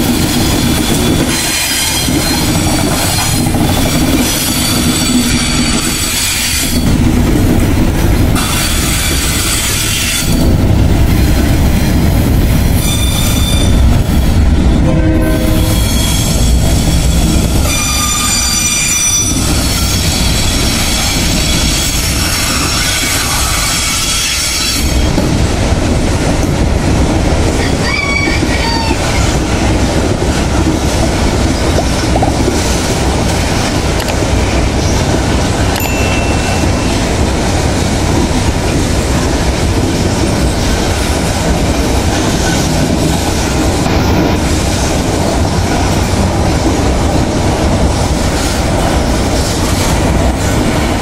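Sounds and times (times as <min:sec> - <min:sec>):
train wheels rumbling over rails: 0:00.0 - 0:51.0
high-pitched wheel squeal: 0:12.8 - 0:13.8, 0:15.4 - 0:24.9.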